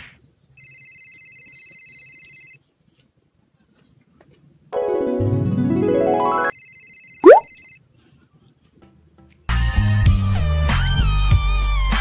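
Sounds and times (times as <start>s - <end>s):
trilling phone ringtone: 5.8s - 7.4s.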